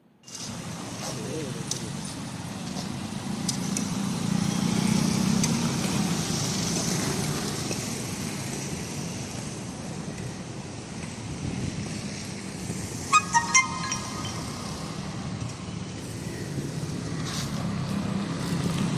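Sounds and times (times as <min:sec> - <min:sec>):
vehicle engine passing by: 0:03.2 - 0:07.7.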